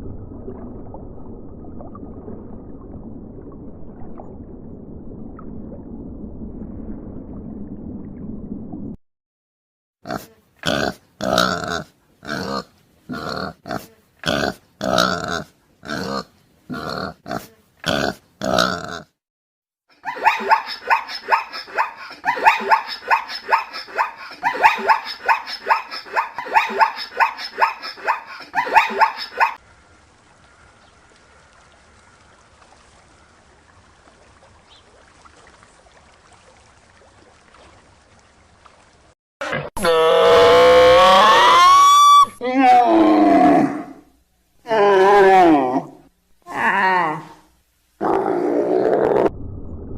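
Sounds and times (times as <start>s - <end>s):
pig grunting and oinking: 10.0s - 19.2s, 39.4s - 40.6s
faint steady hiss: 45.8s - 48.1s.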